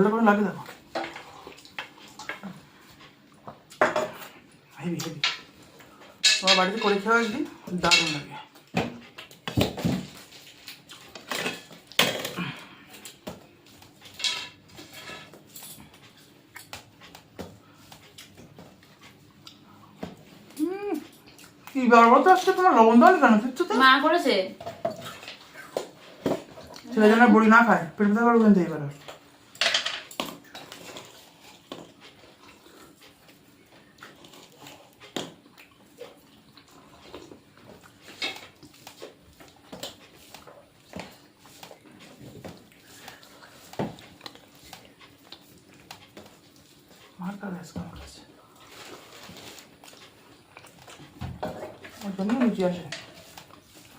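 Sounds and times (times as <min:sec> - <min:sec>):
dishes clinking and scraping: 0:05.1 - 0:08.8, 0:09.5 - 0:12.5, 0:14.0 - 0:16.2, 0:29.5 - 0:32.0.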